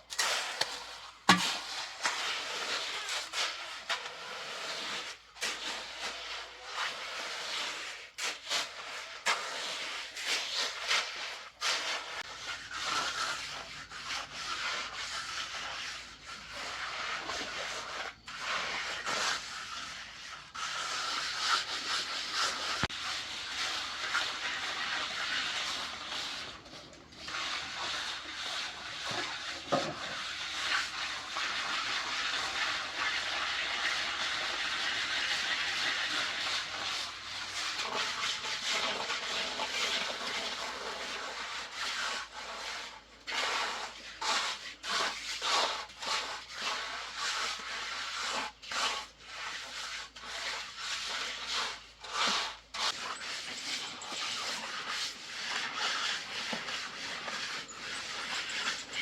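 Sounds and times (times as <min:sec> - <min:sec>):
scraping on rough surface: 0:00.0 - 0:59.0.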